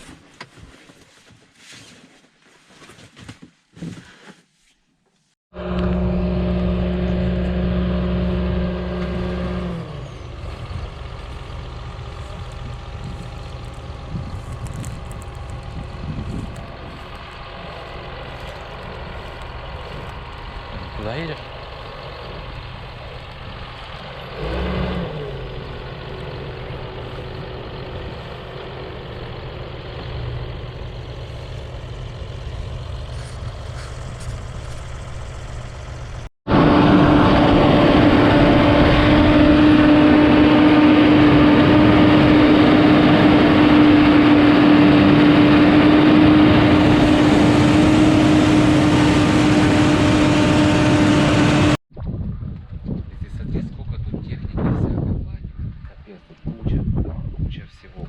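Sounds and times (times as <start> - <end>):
loud engine steady pitch: 5.5 - 51.8
tractor engine running: 5.5 - 51.8.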